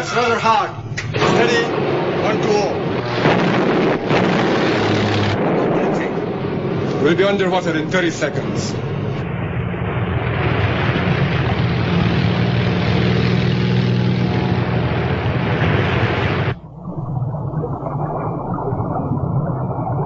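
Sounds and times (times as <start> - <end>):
low rumble: 0.8 - 20.0
propeller aircraft engine: 0.9 - 7.0, 8.2 - 16.6.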